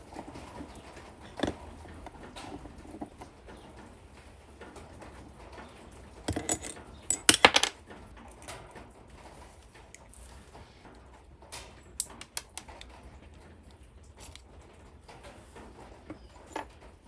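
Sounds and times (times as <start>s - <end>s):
small metal objects clinking: 6.3s - 7.7s.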